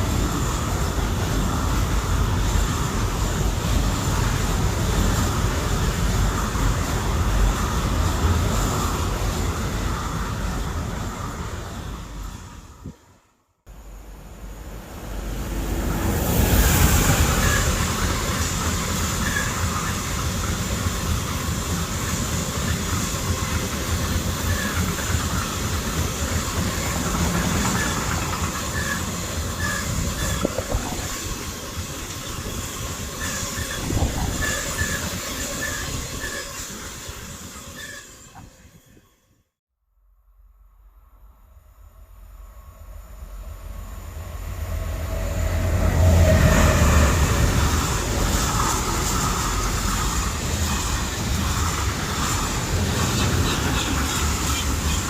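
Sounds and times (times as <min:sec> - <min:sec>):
train wheels rolling on rail: 0:00.0 - 0:39.3, 0:42.5 - 0:55.0
high wheel squeaks: 0:16.7 - 0:20.7, 0:21.4 - 0:39.2.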